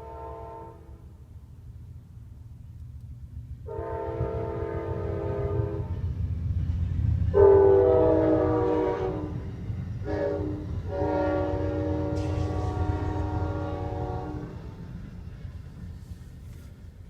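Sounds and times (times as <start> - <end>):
train air horn blasts: 0.0 - 1.2, 3.6 - 6.1, 7.3 - 14.8
moving train rumble: 0.0 - 17.0.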